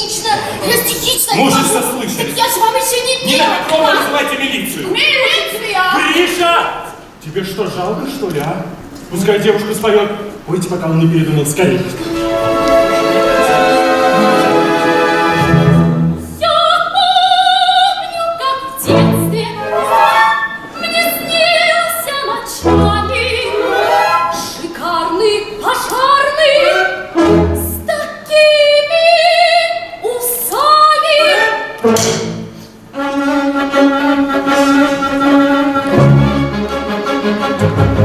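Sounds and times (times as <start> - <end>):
woman singing with vibrato: 16.2 - 31.8.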